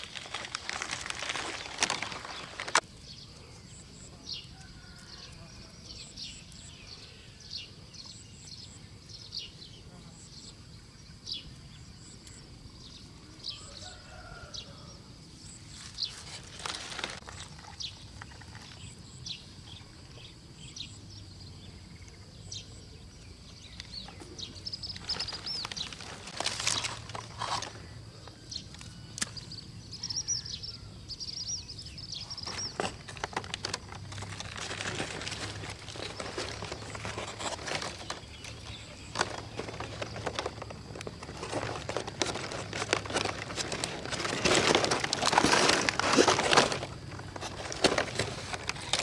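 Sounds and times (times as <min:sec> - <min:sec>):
rustling and crackling: 0:00.0 - 0:02.9, 0:15.7 - 0:19.3, 0:23.6 - 0:29.6, 0:31.8 - 0:49.0
small birds chirping: 0:00.0 - 0:49.0.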